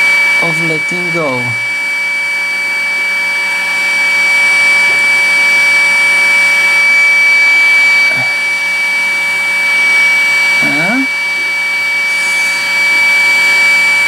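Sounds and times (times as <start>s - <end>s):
high fan whine: 0.0s - 14.0s
hot air gun hissing: 7.8s - 14.0s.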